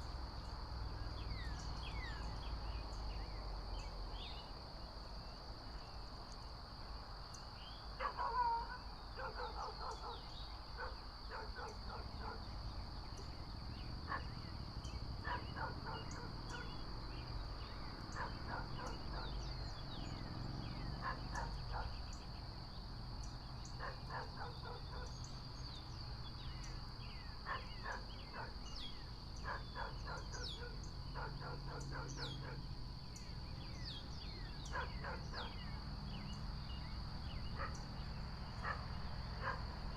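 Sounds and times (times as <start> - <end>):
high insect trill: 0.0 - 39.9
bird calls: 7.3 - 22.5, 23.2 - 39.9.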